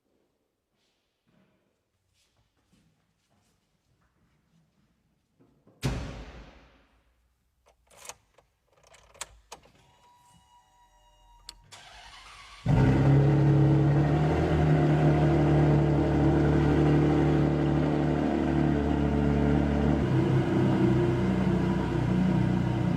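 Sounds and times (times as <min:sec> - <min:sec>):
sports car engine running loud: 0:12.7 - 0:22.9.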